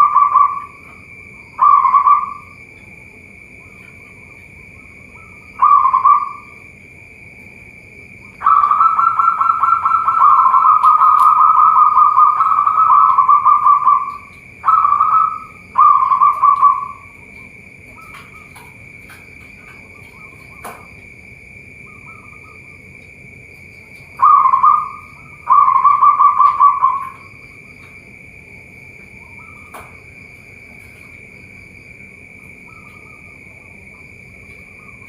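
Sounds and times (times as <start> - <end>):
dove cooing: 0.0 - 6.7, 8.3 - 21.0, 23.7 - 28.0, 28.6 - 31.3
high insect drone: 0.0 - 35.0.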